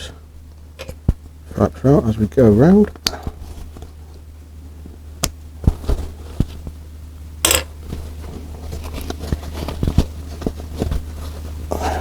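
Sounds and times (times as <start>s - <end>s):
steady low hum: 0.0s - 12.0s
leather rustling scrape: 7.8s - 11.7s.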